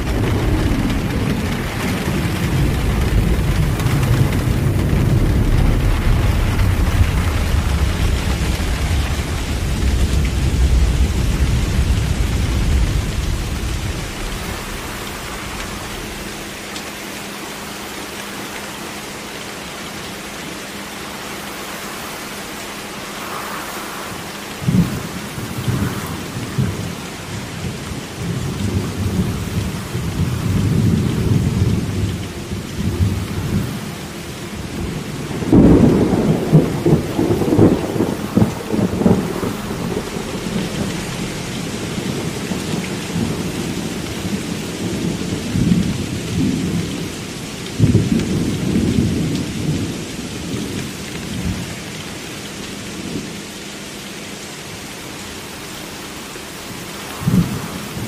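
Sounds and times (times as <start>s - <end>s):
rolling thunder: 0.0s - 16.8s, 21.6s - 47.1s, 56.7s - 58.0s
steady rain: 0.0s - 58.0s.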